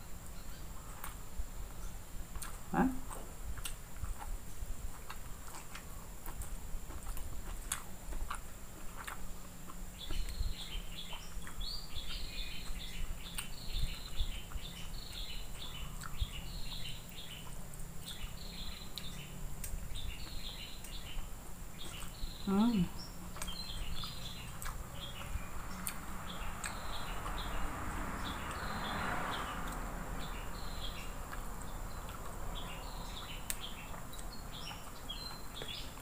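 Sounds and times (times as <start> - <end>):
small bird chirping: 0.0 - 3.0, 5.0 - 36.0
person chewing: 0.8 - 1.3, 2.3 - 16.4, 17.4 - 22.3, 23.2 - 27.5, 31.3 - 32.4
clicks of eating by hand: 2.3 - 10.4, 21.8 - 22.2, 23.3 - 27.5.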